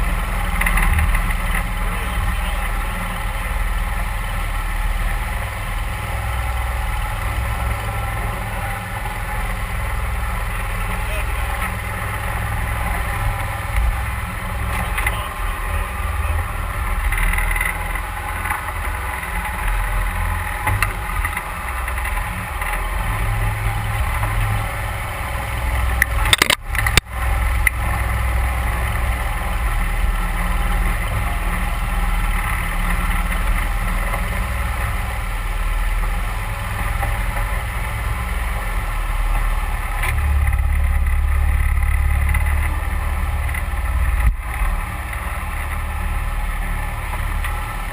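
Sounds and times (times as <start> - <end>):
boat motor droning: 0.0 - 47.9
sharp clicks: 26.0 - 27.8.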